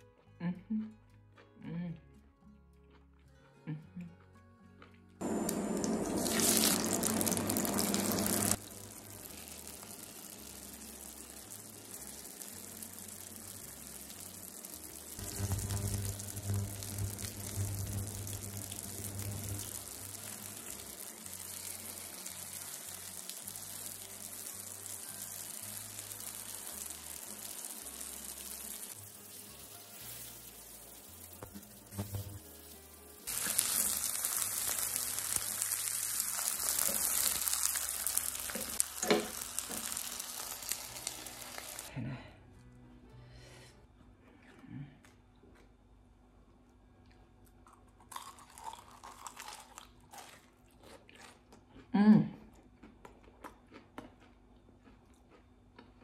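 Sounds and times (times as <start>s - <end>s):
rolls sizzling in a frying pan: 5.2s - 41.9s.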